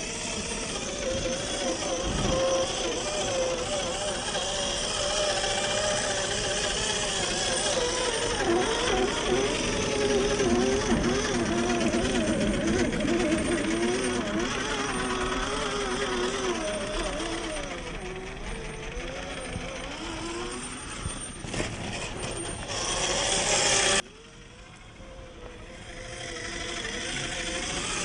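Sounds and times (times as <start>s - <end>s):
toy car motor and gears whining: 0.0s - 28.0s.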